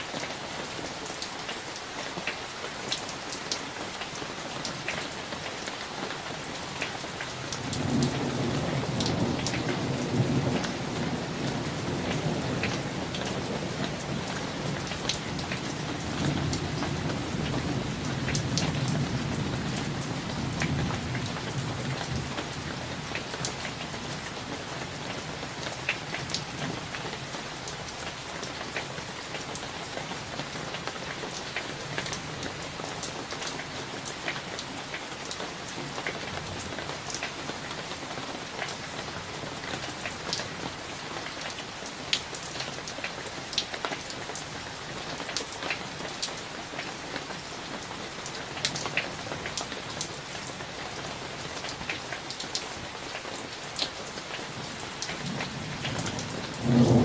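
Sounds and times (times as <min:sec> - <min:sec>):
steady rain: 0:00.0 - 0:57.0
low thunder rumble: 0:55.2 - 0:57.0.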